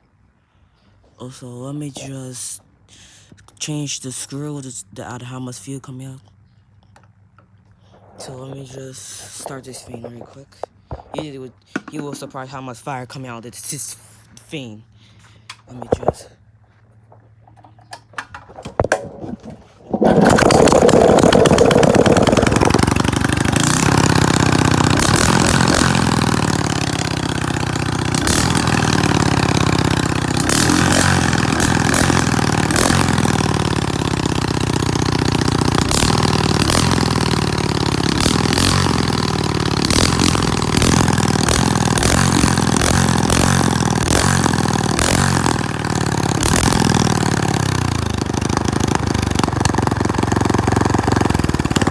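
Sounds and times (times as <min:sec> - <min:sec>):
exhaust popping: 0:15.6 - 0:51.9
engine running very loudly: 0:19.9 - 0:51.9.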